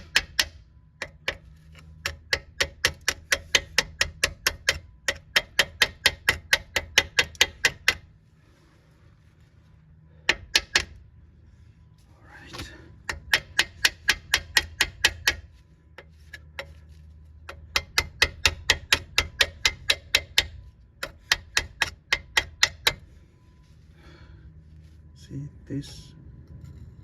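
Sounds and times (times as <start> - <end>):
rapid metal-on-metal tapping: 0.0 - 8.1, 10.3 - 11.0, 13.0 - 23.0.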